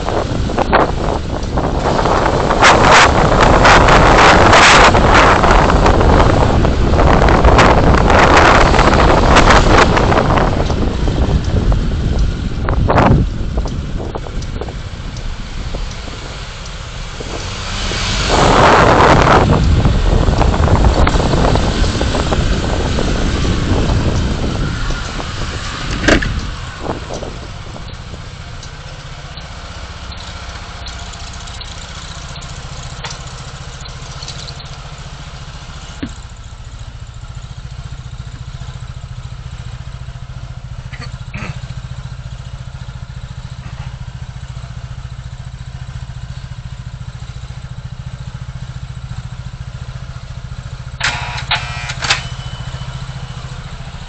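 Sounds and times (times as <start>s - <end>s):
car engine hum: 0.0s - 54.0s
road noise: 0.0s - 54.0s.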